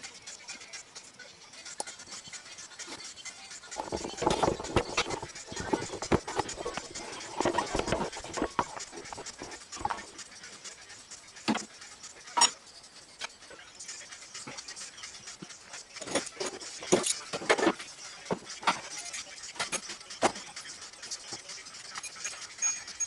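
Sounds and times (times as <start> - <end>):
hand tools clinking on metal: 12.3 - 12.6, 16.0 - 17.7.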